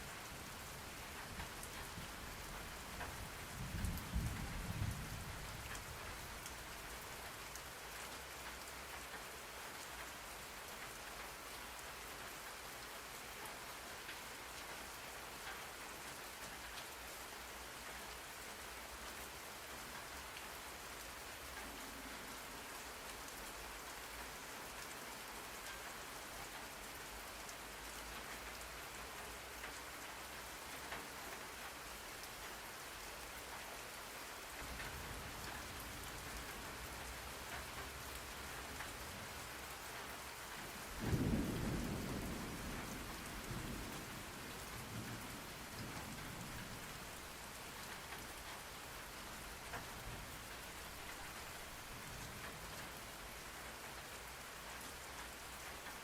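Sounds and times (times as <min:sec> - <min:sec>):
steady rain falling: 0:00.0 - 0:56.0
thunder rumbling: 0:41.0 - 0:44.3.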